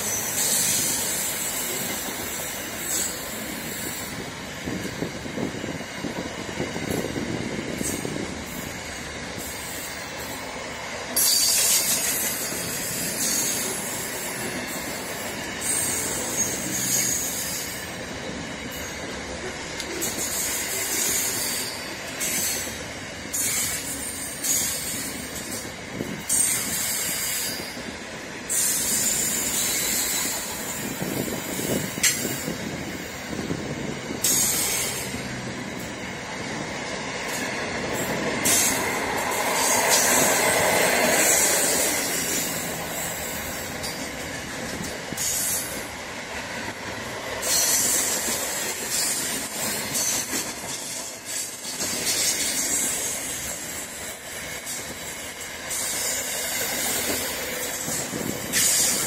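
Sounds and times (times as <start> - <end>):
train wheels on rail: 0.0 - 59.0.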